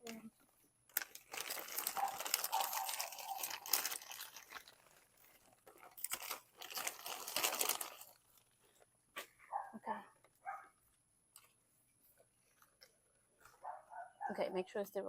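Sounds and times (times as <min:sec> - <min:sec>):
plastic bag crinkling: 0:00.0 - 0:08.9
potting soil crunching: 0:00.0 - 0:09.7.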